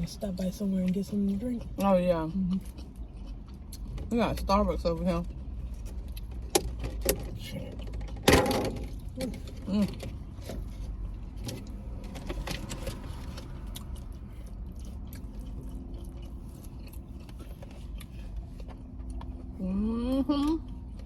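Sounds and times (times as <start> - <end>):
person chewing: 0.7 - 4.5, 5.2 - 6.8, 8.9 - 19.6, 20.4 - 21.0
car cabin rumble: 4.0 - 15.5.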